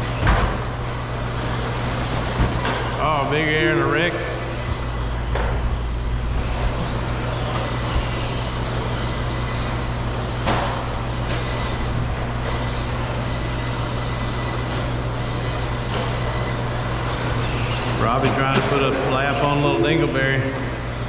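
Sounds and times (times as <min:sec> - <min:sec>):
low constant hum: 0:00.0 - 0:21.0
rc truck motor whir: 0:00.8 - 0:03.2, 0:04.5 - 0:18.1.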